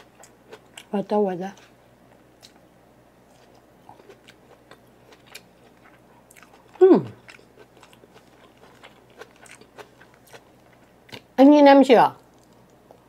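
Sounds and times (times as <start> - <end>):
soft wet chewing: 0.0 - 0.9, 1.5 - 11.3, 12.2 - 13.0
person humming mmm: 6.7 - 7.2.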